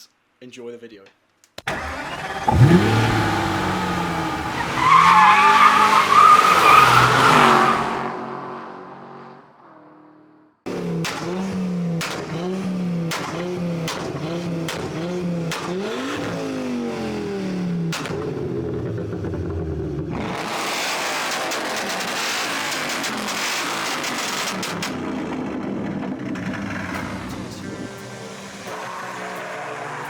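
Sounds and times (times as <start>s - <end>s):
sharp engine cracks: 1.5s - 6.1s
tyre squeal: 1.7s - 8.0s
car engine running hard: 1.7s - 9.1s, 10.7s - 30.0s
engine revving: 1.7s - 9.7s, 10.7s - 30.0s.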